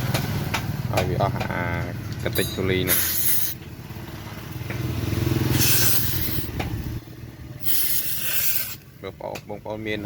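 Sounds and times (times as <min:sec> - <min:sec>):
burst of hiss: 0:05.5 - 0:06.5, 0:07.6 - 0:08.8.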